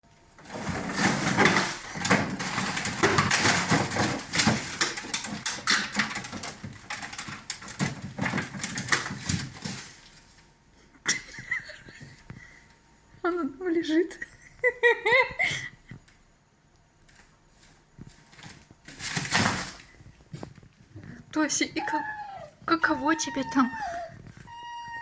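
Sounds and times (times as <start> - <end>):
fox scrabbling and rustling: 0.4 - 10.5, 17.0 - 25.0.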